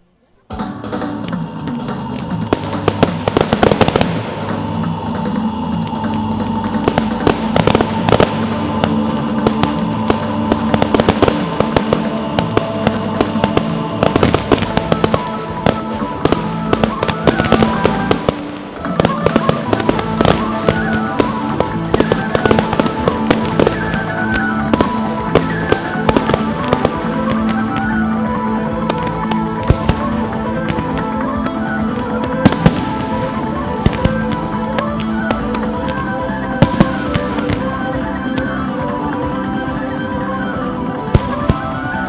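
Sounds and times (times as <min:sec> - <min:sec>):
fireworks banging and crackling: 0:00.0 - 0:42.0
music playing: 0:00.0 - 0:42.0.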